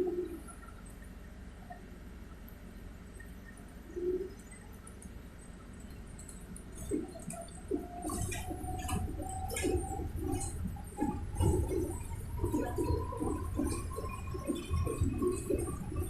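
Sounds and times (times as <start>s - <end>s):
rattles and light clicks: 4.4s - 16.0s.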